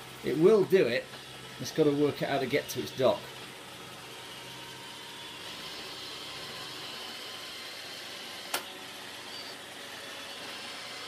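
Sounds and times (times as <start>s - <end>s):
robot vacuum whirring: 2.7s - 11.0s.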